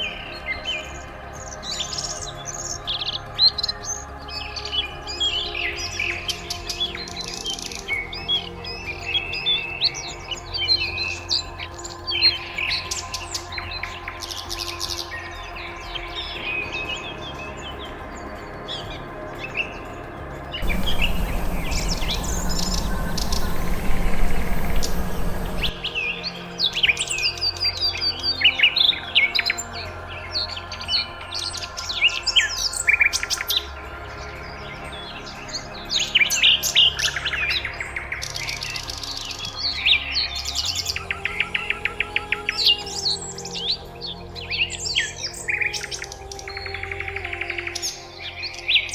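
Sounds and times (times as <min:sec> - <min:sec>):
small birds chirping: 0:00.0 - 0:48.9
steady background noise: 0:19.9 - 0:27.0.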